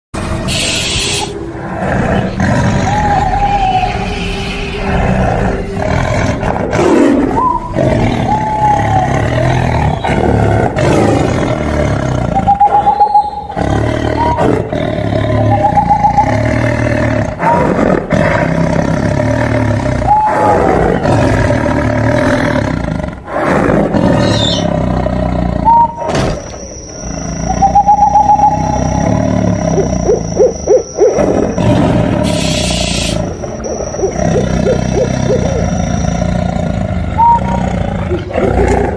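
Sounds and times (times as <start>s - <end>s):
tiger roaring and growling: 1.3s - 4.0s, 4.8s - 38.9s
rising and falling calls: 2.3s - 5.8s, 7.1s - 10.6s, 11.4s - 17.2s, 18.8s - 22.4s, 24.1s - 24.9s, 25.5s - 38.3s.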